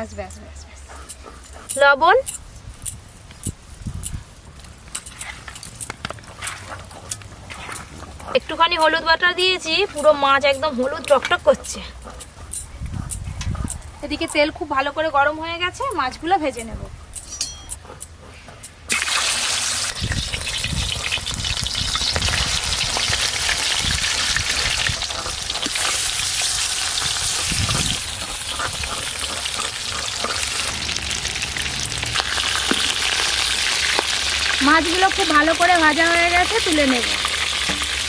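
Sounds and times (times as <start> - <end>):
fish sizzling in hot oil: 18.9 - 38.0.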